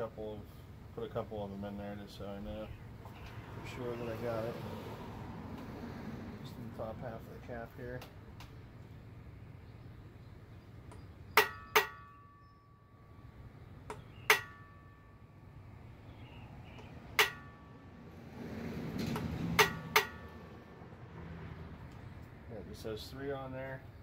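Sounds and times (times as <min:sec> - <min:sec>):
hammer tapping steel punch: 0:10.9 - 0:12.4, 0:13.9 - 0:15.1, 0:16.8 - 0:17.7, 0:19.2 - 0:20.4.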